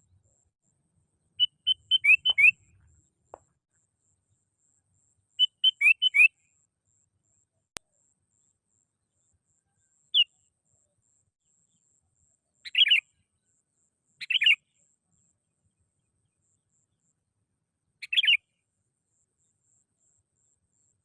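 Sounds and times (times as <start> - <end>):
bulbul calling: 1.4 - 2.9, 5.4 - 6.4, 12.6 - 13.1, 14.2 - 14.7, 18.0 - 18.5.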